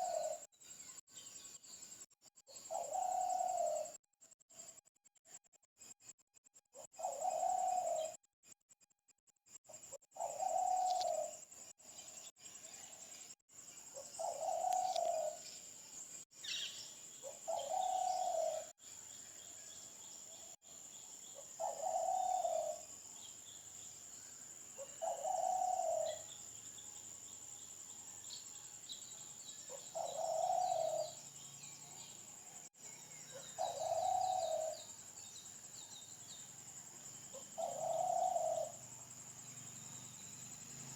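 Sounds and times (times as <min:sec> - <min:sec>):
faint high bird chirps: 0:00.0 - 0:01.8, 0:09.8 - 0:11.3, 0:11.9 - 0:36.5
bird low call: 0:10.2 - 0:11.3, 0:14.0 - 0:15.5.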